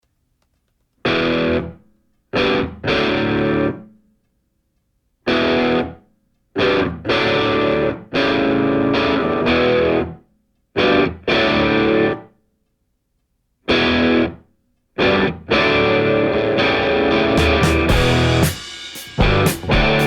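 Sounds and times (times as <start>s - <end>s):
distorted electric guitar chords: 1.1s - 1.8s, 2.4s - 3.8s, 5.3s - 6.0s, 6.6s - 10.2s, 10.8s - 12.2s, 13.7s - 14.4s, 15.0s - 20.0s.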